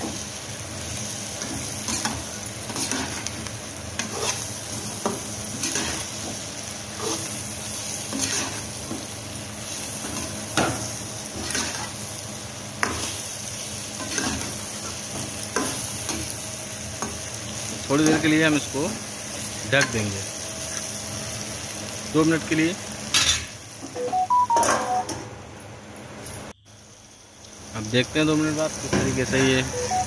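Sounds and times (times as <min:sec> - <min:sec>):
vegetables sizzling in oil: 0:00.0 - 0:24.5, 0:26.6 - 0:30.0
metal spatula scraping pan: 0:08.1 - 0:08.7.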